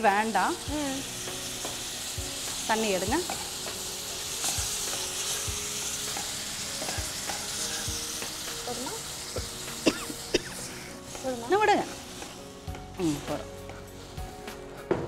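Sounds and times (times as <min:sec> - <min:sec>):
frying hiss in hot oil: 0:00.0 - 0:14.9.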